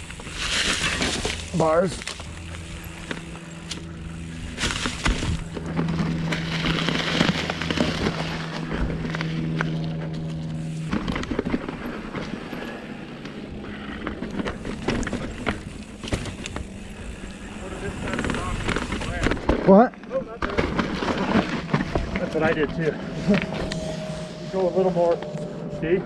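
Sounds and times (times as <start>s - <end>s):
mountain bike rattling on rocks: 0.0s - 9.4s, 10.6s - 13.1s, 14.3s - 19.7s, 20.3s - 23.2s
steady buzz: 0.0s - 19.6s, 20.5s - 24.2s.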